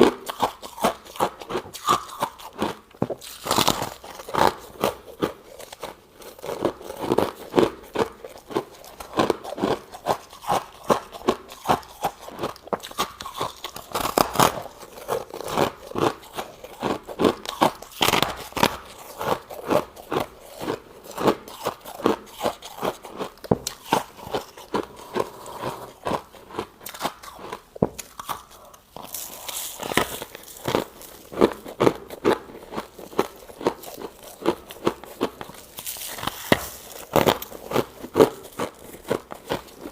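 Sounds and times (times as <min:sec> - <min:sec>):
crunchy chewing of frost: 0:00.0 - 0:39.9.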